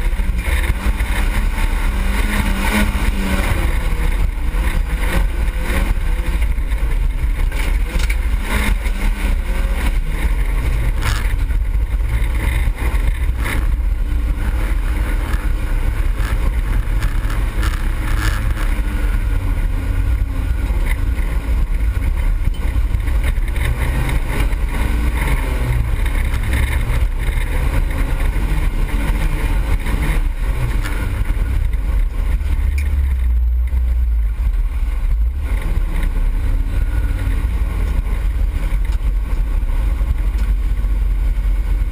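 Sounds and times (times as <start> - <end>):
car engine revving: 0.0 - 41.9
car jolting over rough track: 0.0 - 41.9.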